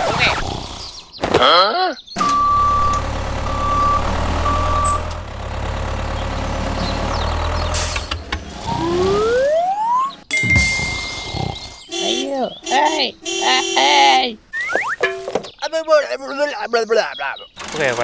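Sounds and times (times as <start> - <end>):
reversing beeps: 2.2 - 5.2
truck engine running: 2.2 - 11.1, 11.9 - 14.5, 17.5 - 18.0
rising whistle: 8.6 - 10.2, 14.5 - 15.0
wobbling whistle: 8.7 - 11.1, 14.5 - 15.2.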